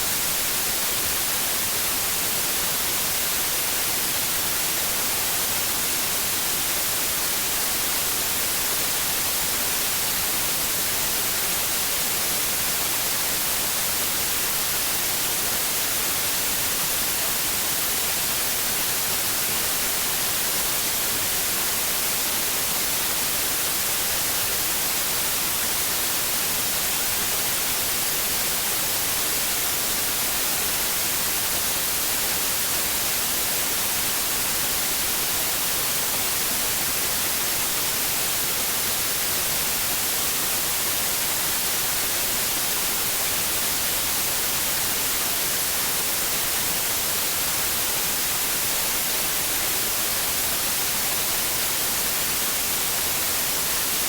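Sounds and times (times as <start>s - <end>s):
steady white noise hiss: 0.0s - 54.0s.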